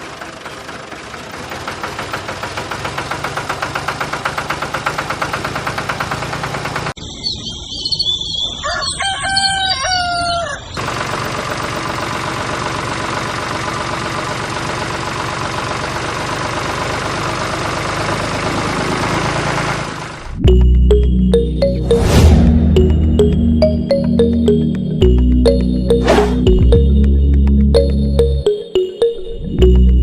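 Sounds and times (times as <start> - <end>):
small tractor engine pulsing: 0.0 - 7.0, 10.8 - 30.0
rooster crowing: 8.6 - 10.8.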